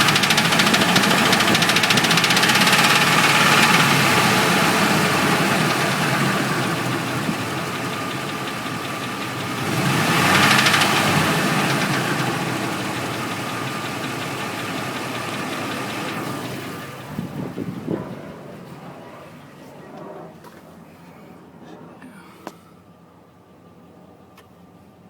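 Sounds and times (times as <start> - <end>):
truck engine knocking: 0.0 - 17.9.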